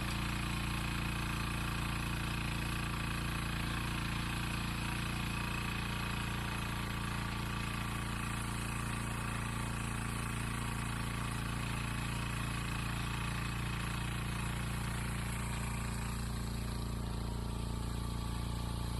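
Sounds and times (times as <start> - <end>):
small engine chugging: 0.0 - 18.9.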